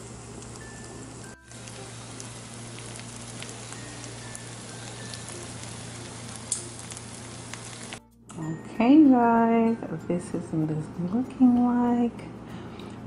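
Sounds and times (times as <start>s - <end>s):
food sizzling in a skillet: 0.0s - 8.0s
hot fat crackling: 0.0s - 8.0s.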